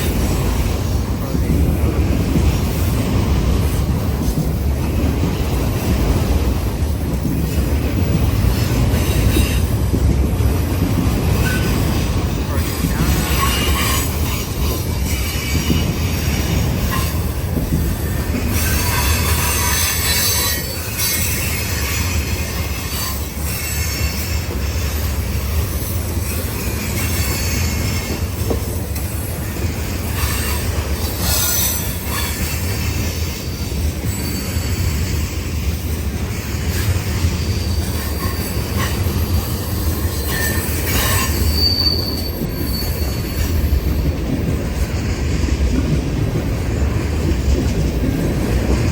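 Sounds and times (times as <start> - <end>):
train rumbling on rails: 0.0 - 48.9
steel wheel squeal: 11.2 - 44.1.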